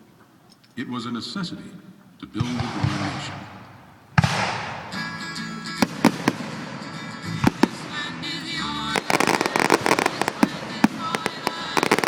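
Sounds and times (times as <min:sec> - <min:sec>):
fireworks bangs and crackling: 0:02.4 - 0:12.0
music playing: 0:04.2 - 0:12.0.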